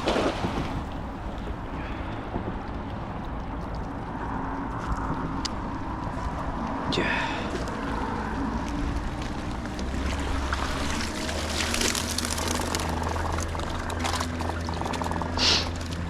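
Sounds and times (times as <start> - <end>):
water pouring and splashing: 0.0 - 1.7, 7.4 - 16.0
steady low rumble: 0.0 - 16.0.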